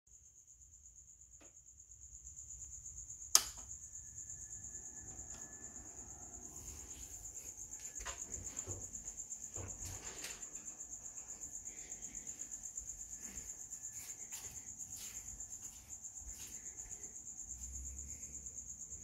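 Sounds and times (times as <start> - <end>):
high pulsing whine: 3.7 - 9.7.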